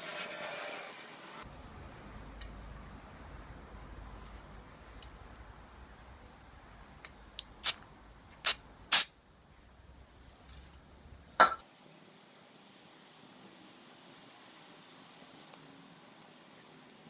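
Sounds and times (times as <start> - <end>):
aerosol spray can hissing: 8.4 - 9.1.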